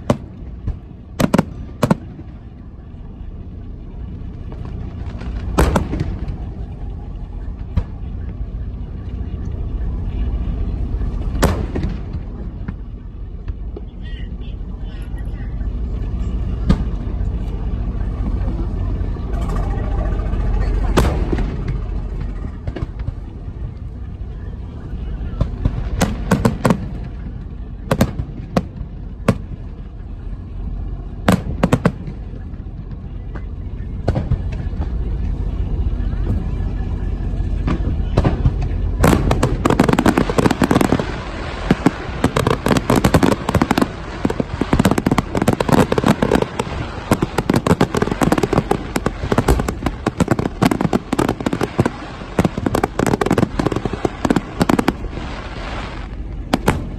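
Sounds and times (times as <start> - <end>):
fireworks booming: 0.0 - 14.9, 15.6 - 56.9
low rumble: 0.0 - 56.9
fireworks cracks and pops: 37.6 - 56.9.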